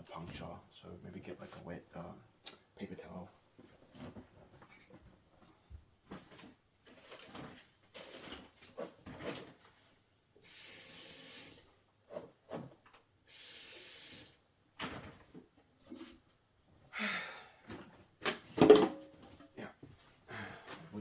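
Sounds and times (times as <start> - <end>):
water running from tap: 10.4 - 11.6.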